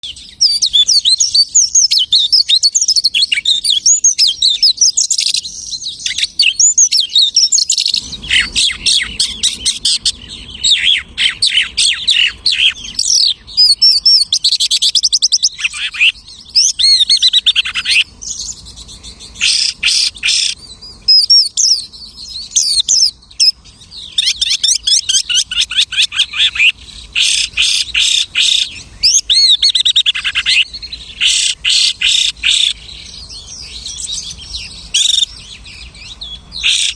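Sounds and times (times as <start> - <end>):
lark singing: 0.0 - 36.9.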